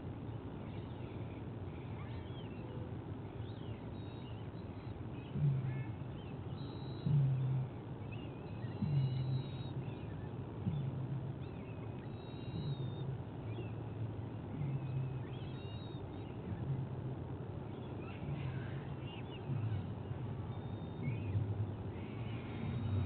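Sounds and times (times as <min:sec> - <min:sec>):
low bird call: 0:00.6 - 0:23.0
high bird chirps and whistles: 0:12.0 - 0:13.0.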